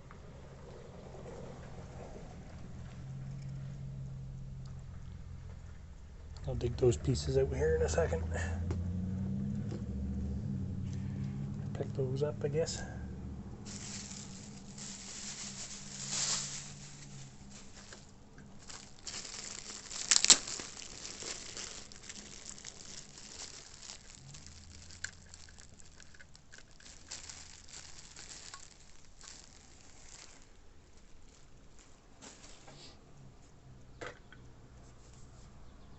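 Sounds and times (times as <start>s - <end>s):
packing material rustling: 13.6s - 32.6s.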